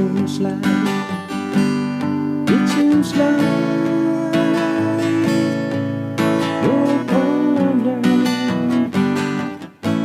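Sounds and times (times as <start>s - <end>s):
person singing: 0.0s - 1.2s, 2.4s - 5.8s, 6.4s - 9.0s
acoustic guitar strumming chords: 0.0s - 10.0s.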